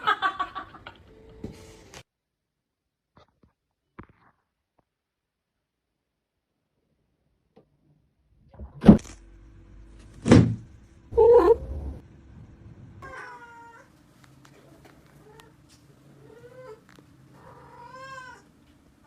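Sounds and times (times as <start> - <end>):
loud thumps: 10.2 - 10.8
cat meowing: 13.0 - 13.9, 17.4 - 18.5.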